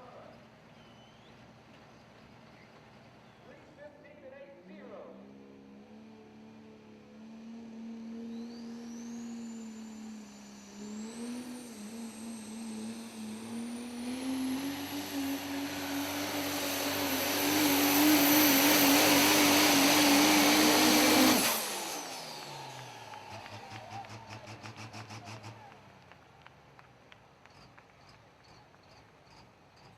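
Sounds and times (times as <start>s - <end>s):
high turbo whine: 5.0s - 26.1s
diesel truck engine under full power: 5.2s - 26.4s.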